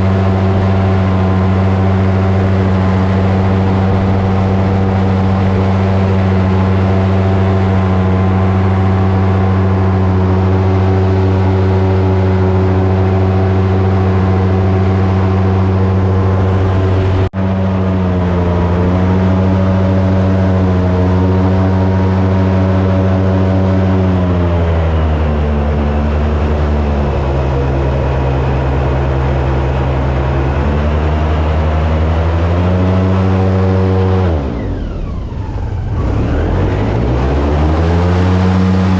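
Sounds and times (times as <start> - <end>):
airboat engine and propeller: 0.0 - 38.9.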